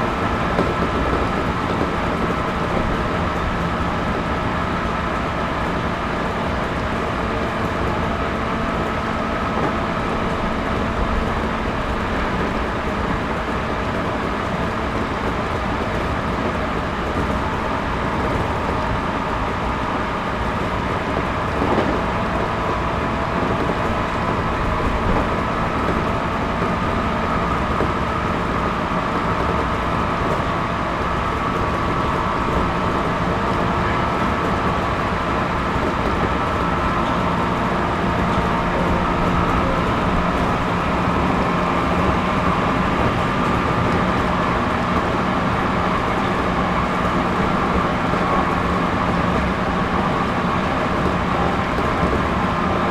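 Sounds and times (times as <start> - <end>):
train cabin rumble: 0.0 - 52.9
train whine: 0.0 - 52.9.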